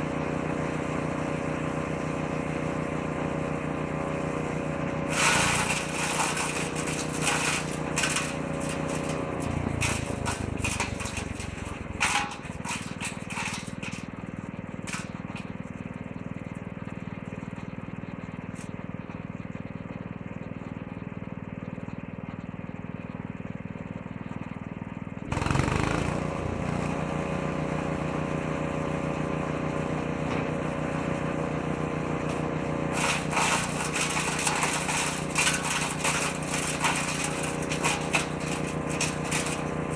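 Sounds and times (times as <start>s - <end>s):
woodchipper engine running: 0.0s - 39.9s
wood cracking and rattling: 33.0s - 39.9s.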